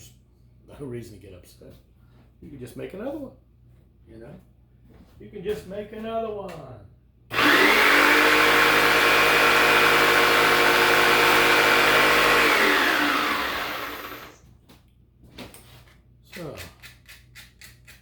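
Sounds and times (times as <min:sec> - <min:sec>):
electric power tool whining: 0:07.3 - 0:14.4.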